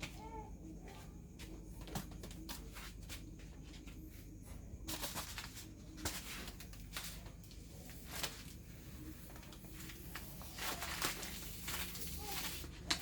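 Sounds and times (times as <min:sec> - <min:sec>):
rustling: 0:04.8 - 0:13.0.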